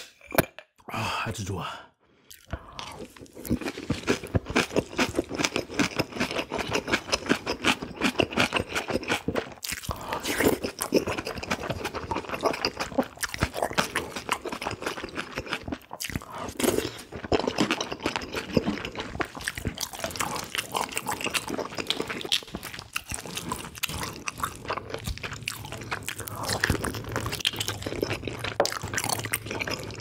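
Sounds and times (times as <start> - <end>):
wet chewing and lip-smacking: 2.3 - 30.0.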